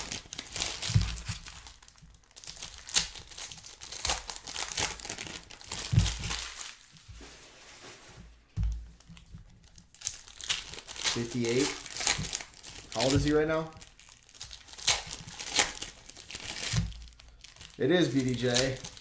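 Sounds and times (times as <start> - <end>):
card pack wrappers tearing: 0.0 - 6.9, 9.0 - 19.0
dull thumps: 5.7 - 6.4, 8.5 - 9.5, 13.0 - 13.8.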